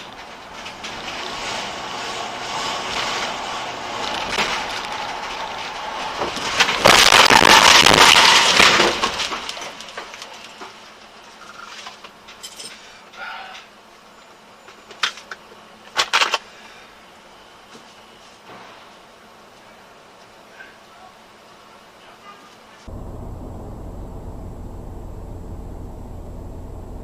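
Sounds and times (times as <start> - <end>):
car driving noise: 0.0 - 7.0, 22.9 - 27.0
loud crash: 4.3 - 9.4, 22.9 - 27.0.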